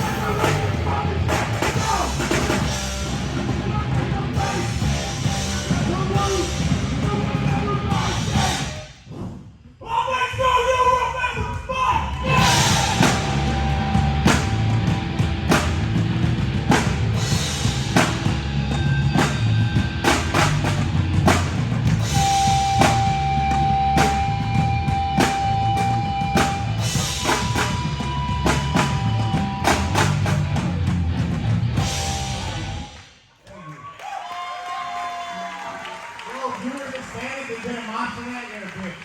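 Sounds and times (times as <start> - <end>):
rock band playing: 0.0 - 8.8, 12.3 - 33.0
drum kit with cymbal crashes: 0.0 - 9.0, 12.2 - 33.0.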